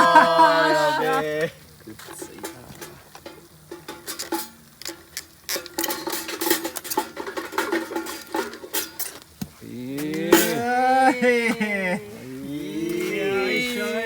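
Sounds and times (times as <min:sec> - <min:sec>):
metal utensils scraping a pan: 0:02.0 - 0:09.4, 0:10.0 - 0:10.6.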